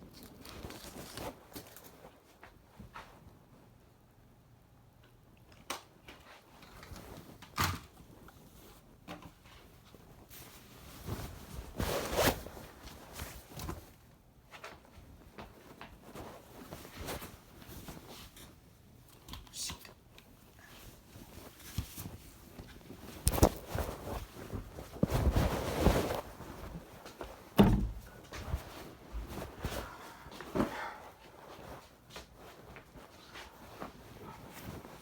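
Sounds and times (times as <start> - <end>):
objects rustling and knocking: 21.3 - 35.0.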